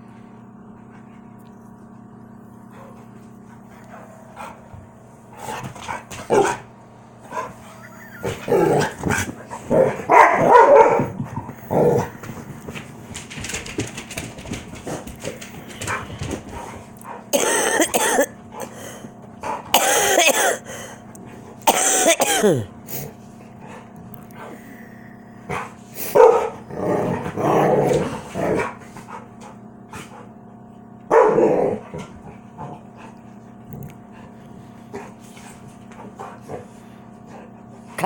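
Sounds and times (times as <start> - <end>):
dogs growling: 2.6 - 30.4, 31.1 - 37.6
dogs barking: 5.9 - 6.6, 7.3 - 12.2, 25.5 - 26.7, 31.1 - 32.0.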